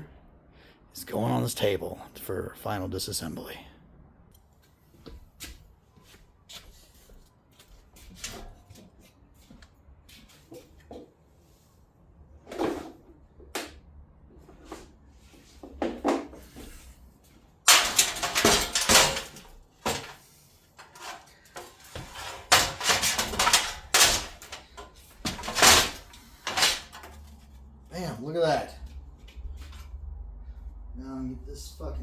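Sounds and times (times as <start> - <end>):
clattering and banging on metal: 17.6 - 27.6
knocks and thumps: 21.0 - 27.2.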